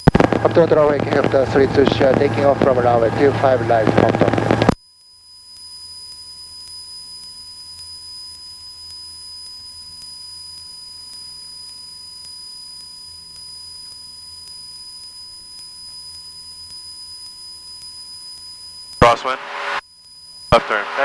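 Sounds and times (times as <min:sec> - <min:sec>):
airplane engine drone: 0:00.0 - 0:04.8, 0:19.0 - 0:19.8, 0:20.5 - 0:21.0
high-pitched whine: 0:00.0 - 0:04.8, 0:19.0 - 0:19.8, 0:20.5 - 0:21.0.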